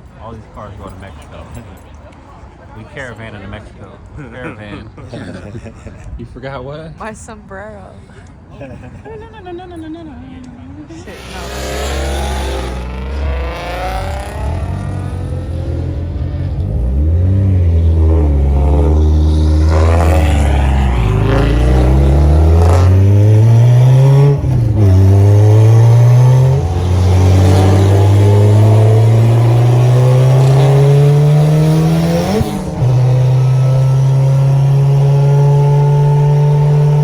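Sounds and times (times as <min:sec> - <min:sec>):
car engine accelerating: 0:11.0 - 0:37.0.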